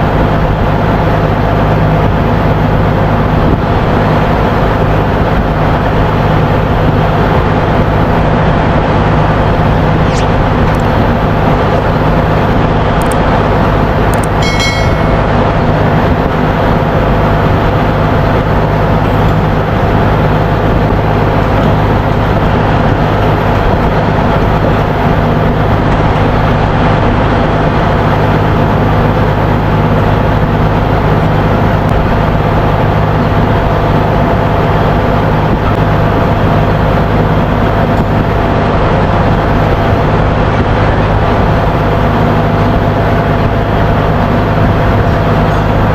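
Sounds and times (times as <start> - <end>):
machinery droning: 0.0 - 45.9
high-pitched metallic ring: 14.2 - 16.0.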